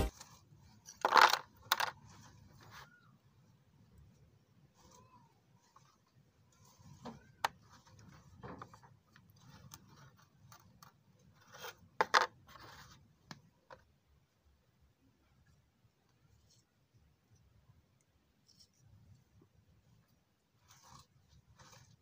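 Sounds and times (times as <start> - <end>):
hands rubbing and scraping cardboard: 0.0 - 1.0, 4.6 - 13.5, 18.4 - 22.0.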